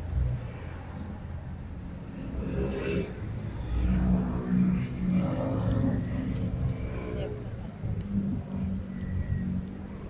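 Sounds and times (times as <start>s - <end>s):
vehicle engine speeding up: 2.0s - 10.0s.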